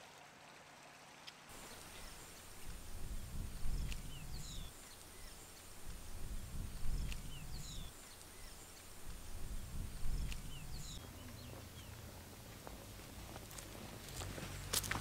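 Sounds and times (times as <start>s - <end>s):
small birds chirping: 1.5s - 14.2s
low rumble: 2.5s - 4.6s.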